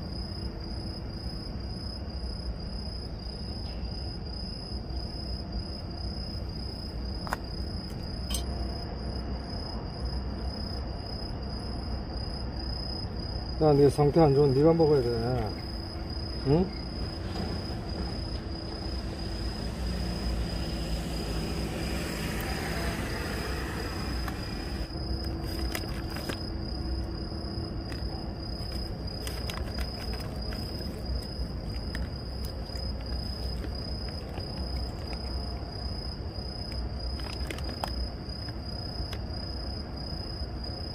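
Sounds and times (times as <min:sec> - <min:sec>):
crickets chirping: 0:00.0 - 0:40.9
insect trilling: 0:13.6 - 0:39.6.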